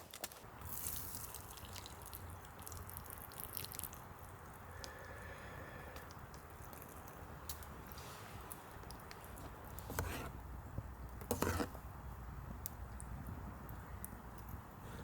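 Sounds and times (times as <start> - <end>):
drops dripping and ticking: 0.7 - 5.2.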